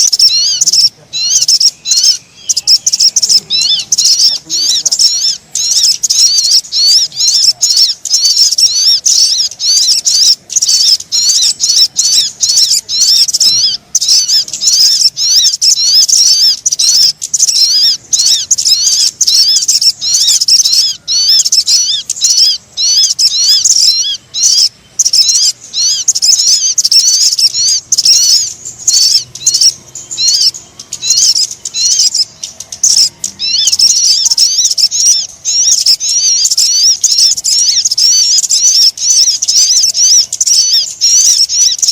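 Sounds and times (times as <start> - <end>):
bird lure chirping: 0.0 - 41.9.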